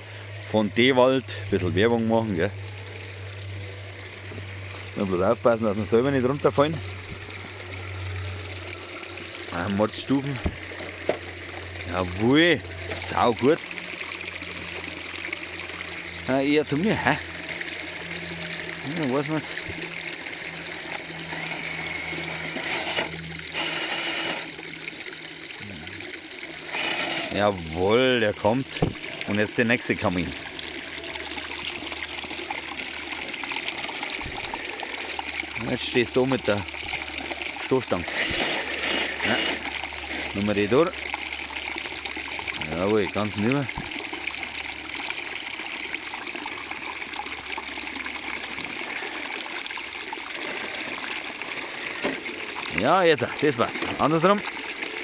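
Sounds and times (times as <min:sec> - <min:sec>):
water running over rocks: 0:00.0 - 0:55.0
electric motor hum: 0:13.7 - 0:27.8, 0:38.0 - 0:40.3.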